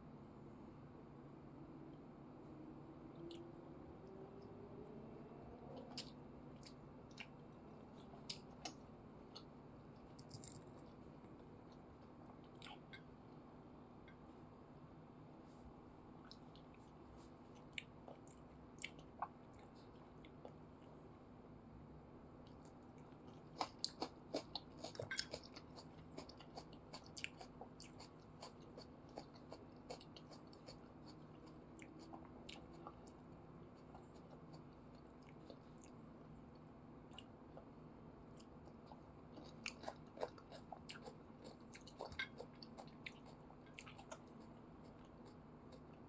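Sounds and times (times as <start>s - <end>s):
wet chewing mouth clicks: 38.4s - 46.0s.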